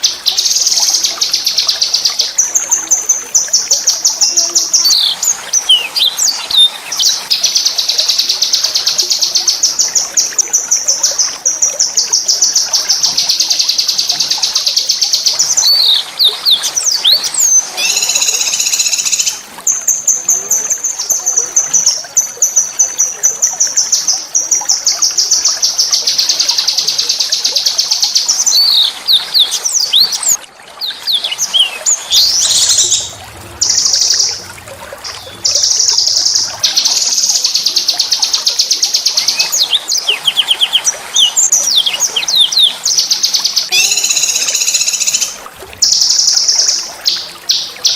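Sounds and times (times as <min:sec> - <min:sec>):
songbird trilling: 0:15.5 - 0:19.4, 0:43.5 - 0:46.6.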